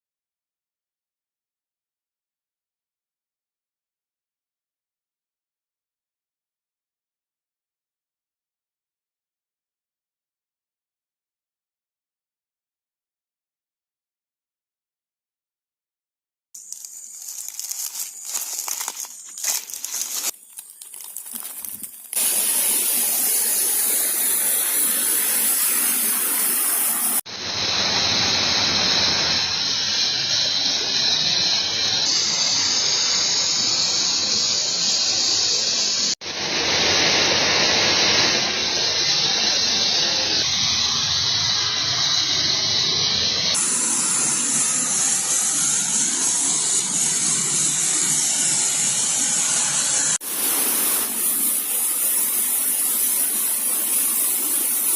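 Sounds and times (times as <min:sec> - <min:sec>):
loud hissing noise: 0:16.6 - 0:54.9.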